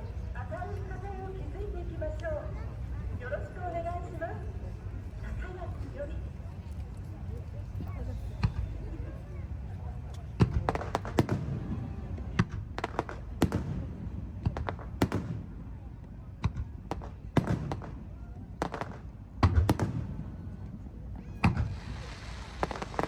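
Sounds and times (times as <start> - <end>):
fireworks bursting with echoing bangs: 10.3 - 20.7, 21.4 - 23.0.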